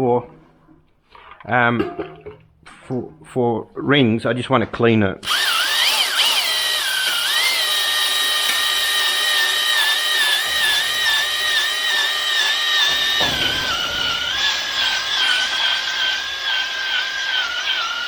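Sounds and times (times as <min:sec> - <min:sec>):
electric drill motor whine: 0:05.2 - 0:18.0.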